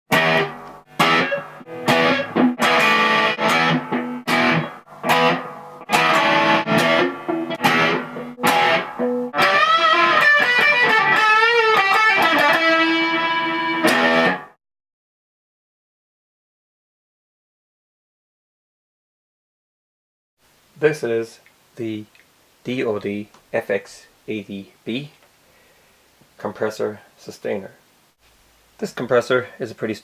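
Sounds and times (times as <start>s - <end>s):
electric guitar chords and lead: 0.1s - 14.6s.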